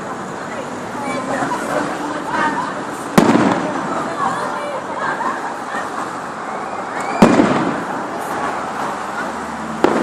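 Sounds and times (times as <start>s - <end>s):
fireworks display: 2.4s - 4.8s, 5.8s - 10.0s
firework bang: 3.1s - 3.9s, 7.0s - 8.0s, 9.8s - 10.0s.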